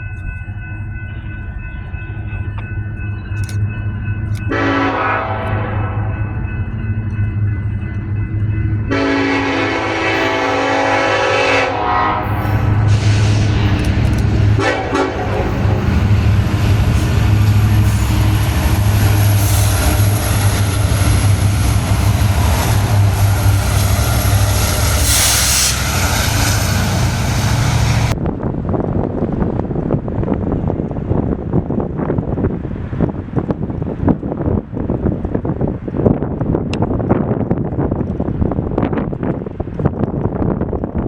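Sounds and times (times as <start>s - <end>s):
diesel engine rumble: 0.0s - 31.0s
train rail noise: 0.0s - 41.0s
wind noise on microphone: 0.0s - 41.0s
locomotive horn: 4.5s - 6.2s, 8.9s - 28.2s.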